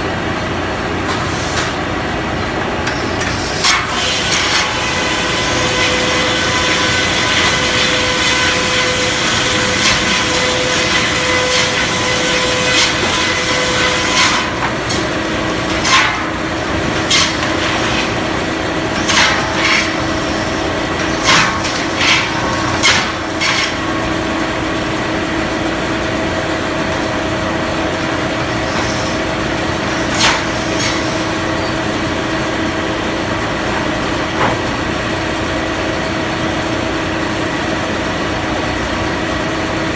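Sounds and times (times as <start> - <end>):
circular saw cutting wood: 2.9 - 23.9, 27.5 - 35.4.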